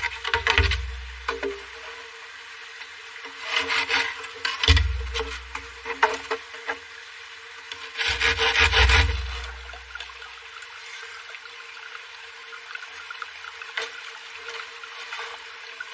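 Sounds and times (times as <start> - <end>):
rasping strokes on wood: 3.4 - 5.6, 8.0 - 9.8.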